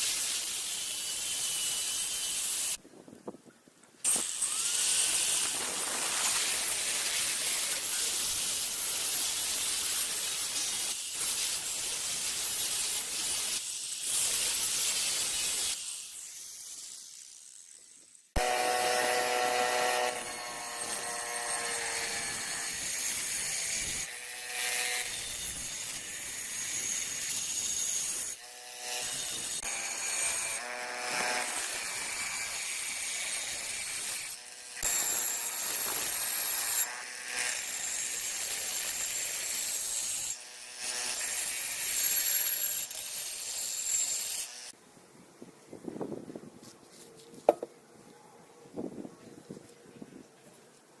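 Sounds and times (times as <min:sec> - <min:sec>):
tool scraping with high whine: 0:04.0 - 0:44.8.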